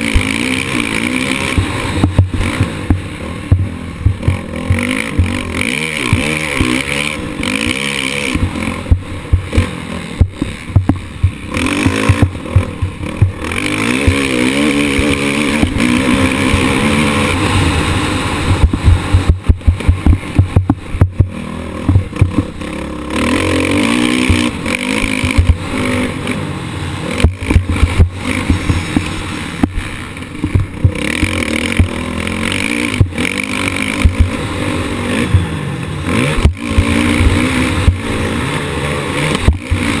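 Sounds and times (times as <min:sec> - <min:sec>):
motocross bike engine revving: 0:00.0 - 0:40.0
bike knocks and clatter: 0:01.5 - 0:06.9, 0:08.4 - 0:16.7, 0:18.5 - 0:22.6, 0:27.2 - 0:32.0
wind rush on microphone: 0:16.2 - 0:22.6.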